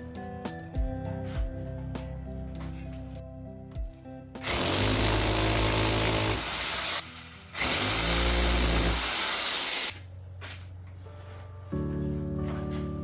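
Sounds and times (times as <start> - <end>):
background music: 0.0 - 13.0
power tool motor spinning: 4.4 - 9.9.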